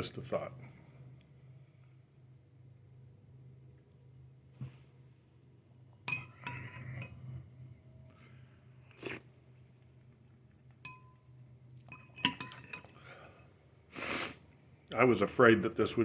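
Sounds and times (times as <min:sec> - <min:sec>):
spoon clinking against bowl: 0:06.0 - 0:07.3, 0:10.8 - 0:13.5.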